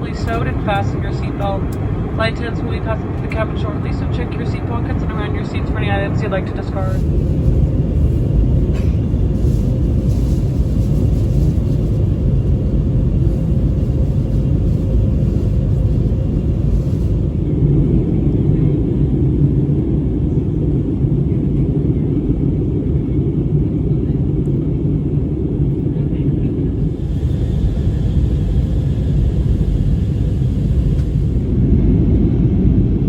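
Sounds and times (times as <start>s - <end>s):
aircraft cabin engine rumble: 0.0s - 33.0s.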